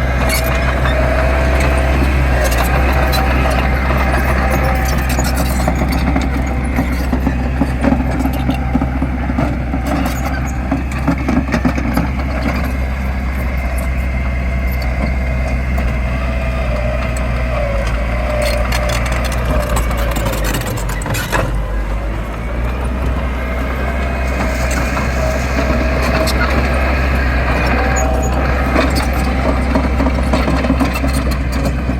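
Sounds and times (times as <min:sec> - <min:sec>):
heavy machinery diesel engine: 0:00.0 - 0:31.9
wavering whine: 0:18.7 - 0:31.9.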